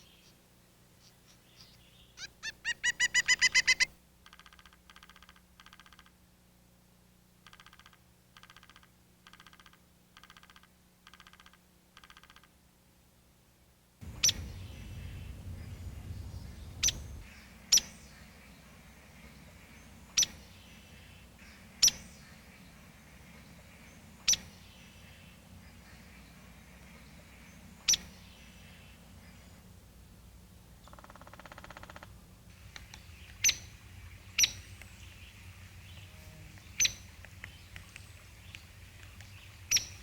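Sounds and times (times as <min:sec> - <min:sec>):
soft hiss: 0:32.0 - 0:40.0.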